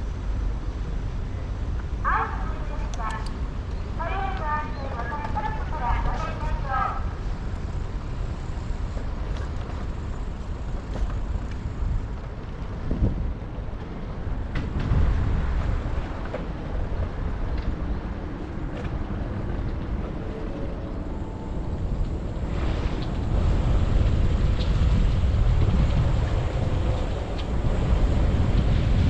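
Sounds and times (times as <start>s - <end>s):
road noise: 0.0s - 29.0s
traffic noise: 0.0s - 29.0s
wind buffeting: 0.0s - 29.0s.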